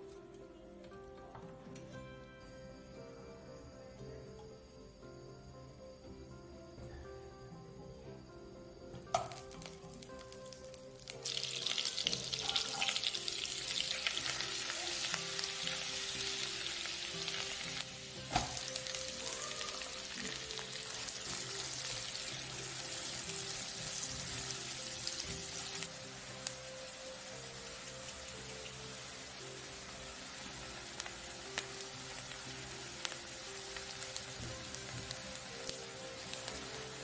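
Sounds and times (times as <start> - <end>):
butter sizzling in frying pan: 9.2 - 37.0.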